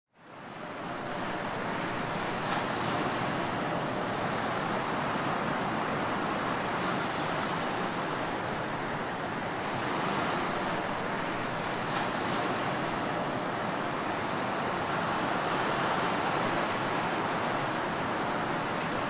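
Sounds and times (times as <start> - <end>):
ocean surf washing on beach: 0.2 - 19.0.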